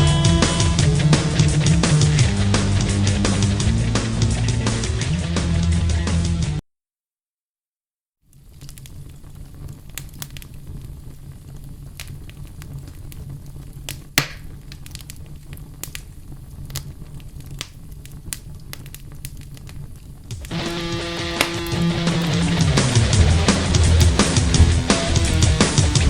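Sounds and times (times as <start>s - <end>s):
campfire crackling: 8.3s - 26.0s.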